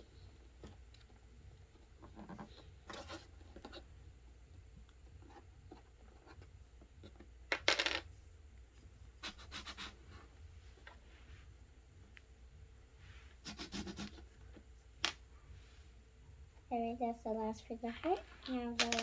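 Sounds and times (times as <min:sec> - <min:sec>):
plastic toys clattering: 0:17.9 - 0:19.0.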